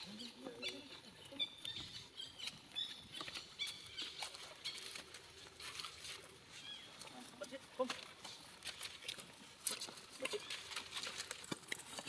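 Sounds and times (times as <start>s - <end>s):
monkey squeaking: 0.0s - 4.9s
clicks and pattering: 7.0s - 12.0s.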